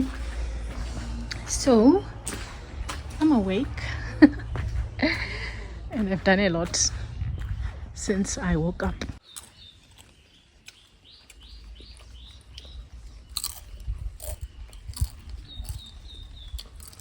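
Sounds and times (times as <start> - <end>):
low rumble: 0.0 - 9.2
bird chirping: 3.8 - 16.9
sharp crunching clicks: 8.8 - 17.0.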